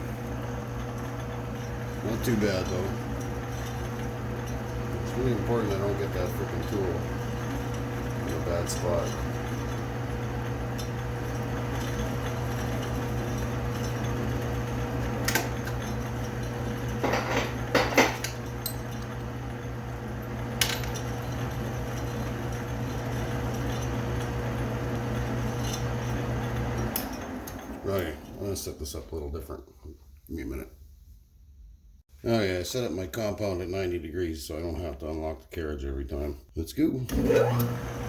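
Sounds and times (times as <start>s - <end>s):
metal lathe running: 0.0s - 28.6s, 37.1s - 38.0s.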